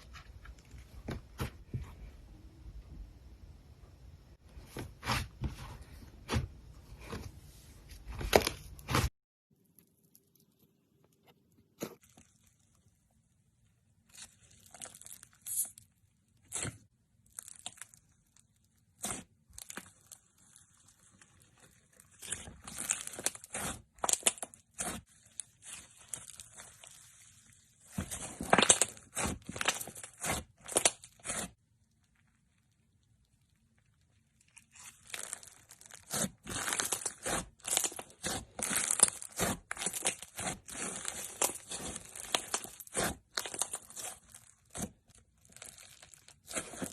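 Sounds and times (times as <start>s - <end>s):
hands squishing slime: 19.0s - 31.6s, 34.5s - 46.9s.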